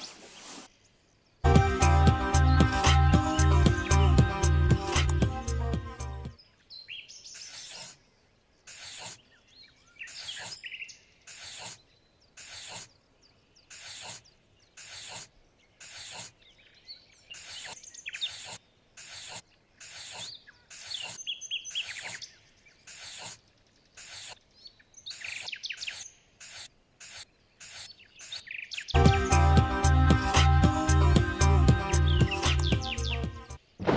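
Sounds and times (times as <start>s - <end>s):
hand hoe scraping sand: 0.0s - 0.7s.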